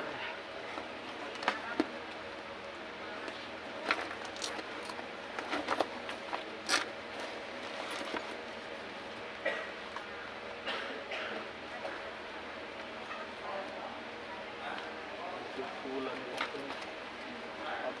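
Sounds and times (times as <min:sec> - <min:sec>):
steady background hum: 0:00.0 - 0:18.0
small clicks and scrapes: 0:03.2 - 0:08.4.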